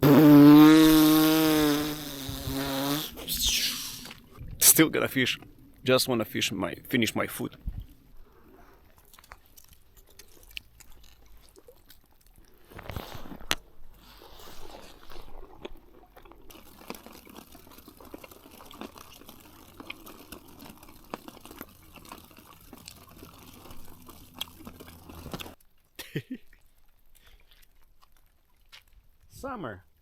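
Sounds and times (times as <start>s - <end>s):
background hiss: 0.0s - 9.1s
person chewing and crunching food: 7.8s - 29.3s.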